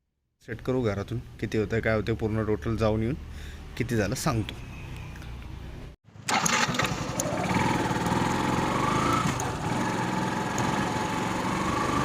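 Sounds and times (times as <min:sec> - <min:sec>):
motorcycle engine running: 0:06.3 - 0:12.0.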